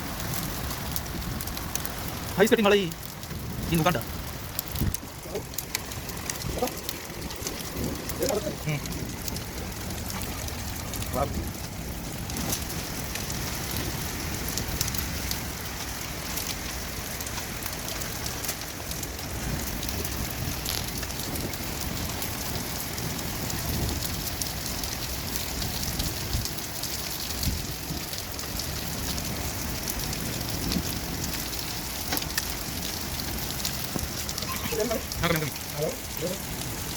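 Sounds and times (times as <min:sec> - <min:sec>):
hail ticking: 0:00.0 - 0:36.9
rain hissing: 0:00.0 - 0:36.9.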